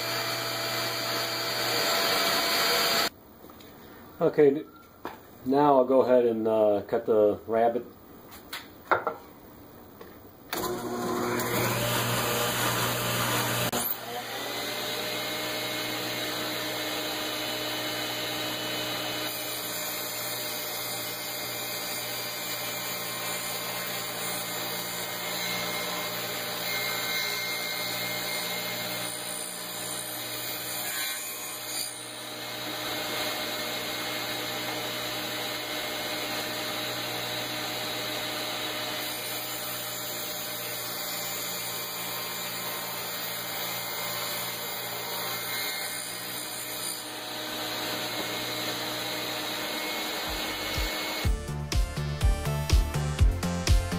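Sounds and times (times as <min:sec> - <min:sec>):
power tool running: 0:00.0 - 0:03.1, 0:10.5 - 0:30.8, 0:32.2 - 0:51.4
shop vacuum running: 0:00.0 - 0:03.1, 0:10.5 - 0:20.5, 0:47.1 - 0:51.3.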